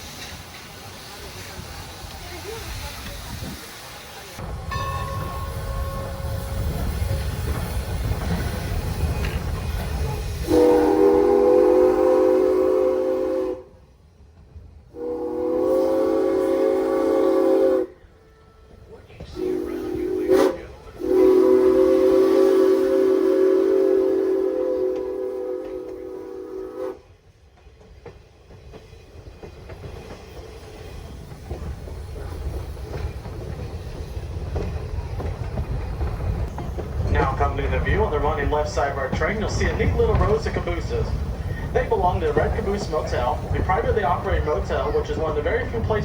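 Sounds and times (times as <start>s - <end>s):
train rumbling: 0.0s - 46.0s
steam locomotive whistle: 10.2s - 13.9s, 14.9s - 18.7s, 19.3s - 27.2s.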